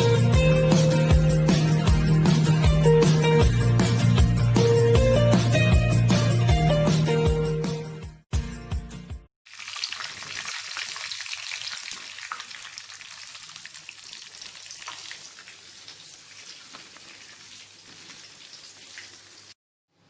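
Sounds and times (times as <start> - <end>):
chicken frying in hot oil: 9.5 - 19.6.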